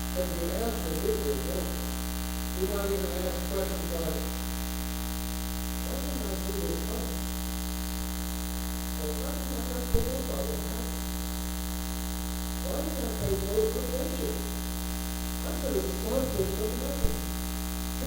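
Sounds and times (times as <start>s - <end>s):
electrical mains hum: 0.0s - 18.0s
muffled speech: 0.2s - 1.9s, 2.6s - 4.4s, 5.8s - 7.3s, 9.0s - 11.0s, 12.6s - 14.6s, 15.4s - 17.2s.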